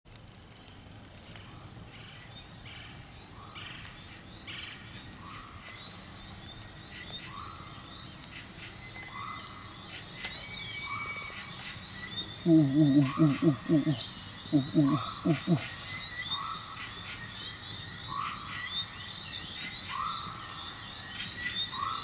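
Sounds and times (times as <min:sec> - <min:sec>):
short rising animal calls: 0:12.5 - 0:15.7.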